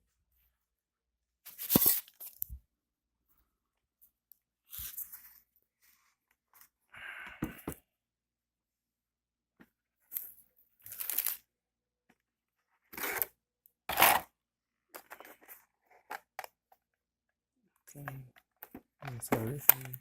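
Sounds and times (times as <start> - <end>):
packaging rustling and tearing: 1.5 - 2.5.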